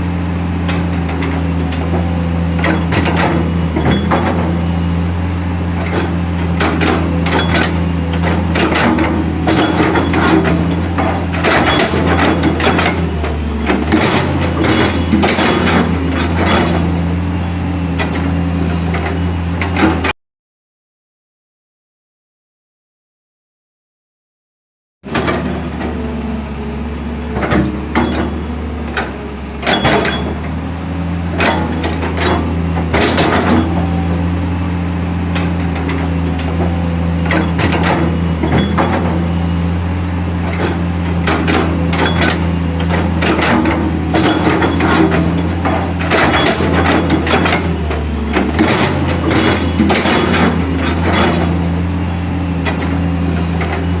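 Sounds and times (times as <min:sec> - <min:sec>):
excavator diesel engine running: 0:00.0 - 0:20.1, 0:25.1 - 0:54.0
sharp knocks from machine working: 0:00.6 - 0:04.8, 0:05.8 - 0:17.2, 0:18.0 - 0:20.1, 0:25.1 - 0:26.1, 0:27.2 - 0:30.6, 0:31.3 - 0:34.4, 0:35.2 - 0:39.5, 0:40.4 - 0:54.0.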